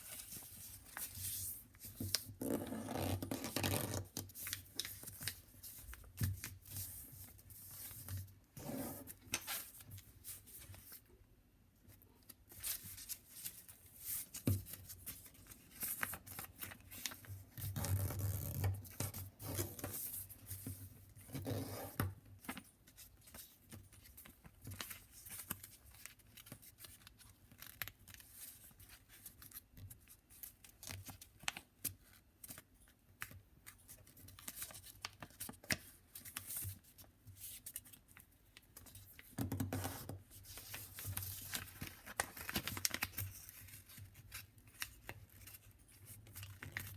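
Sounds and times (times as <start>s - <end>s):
paper rustling and crinkling: 0.0s - 11.1s, 12.0s - 46.9s.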